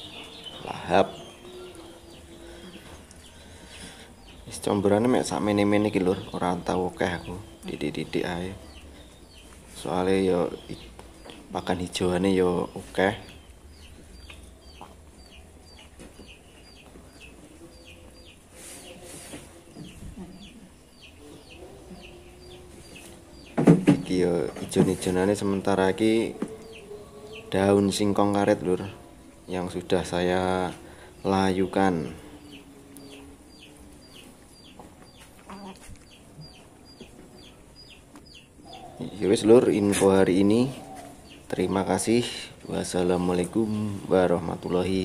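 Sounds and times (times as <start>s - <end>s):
bird calling: 32.4s - 39.5s.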